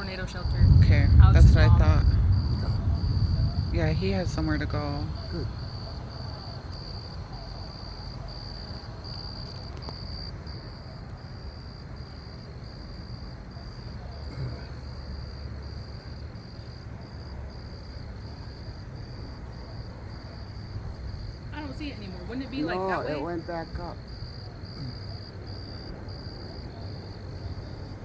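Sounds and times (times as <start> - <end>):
low rumble: 0.0 - 6.9
crickets chirping: 0.0 - 28.0.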